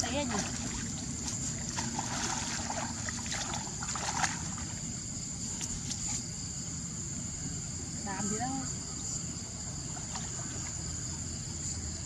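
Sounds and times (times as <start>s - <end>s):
water sloshing and splashing: 0.0s - 6.3s, 9.7s - 11.3s.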